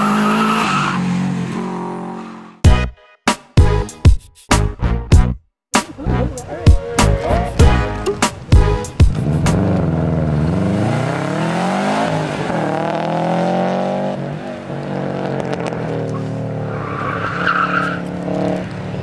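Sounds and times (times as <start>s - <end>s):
car engine accelerating hard: 9.1s - 19.0s.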